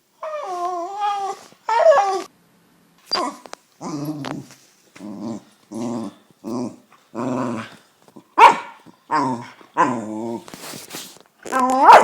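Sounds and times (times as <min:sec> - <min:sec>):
dog growling barks: 0:05.0 - 0:10.5, 0:11.5 - 0:12.0.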